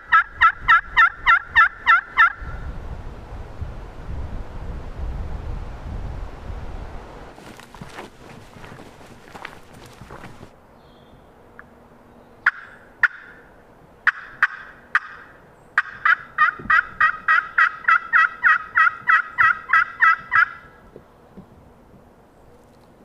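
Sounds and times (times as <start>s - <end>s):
turkey yelps: 0.0s - 2.4s, 14.1s - 20.7s.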